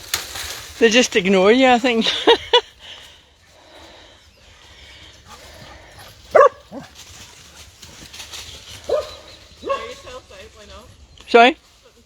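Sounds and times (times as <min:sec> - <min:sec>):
dog barking: 0:06.3 - 0:06.9, 0:08.9 - 0:10.0.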